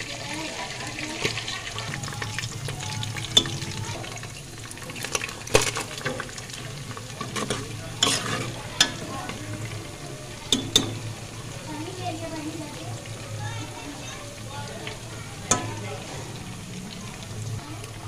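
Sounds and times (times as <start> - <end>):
onions sizzling in hot oil: 0.0 - 18.0
spatula clicking against pan: 10.5 - 11.1, 15.4 - 15.8.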